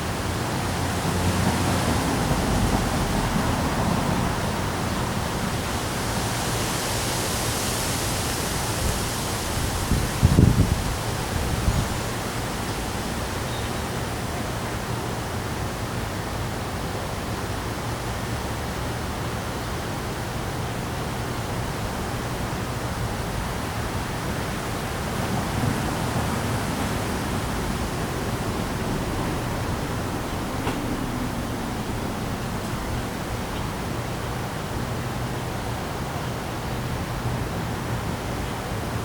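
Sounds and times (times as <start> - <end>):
strong storm wind with rain: 0.0 - 39.0
wind gusts buffeting microphone: 8.0 - 13.2, 22.6 - 35.5.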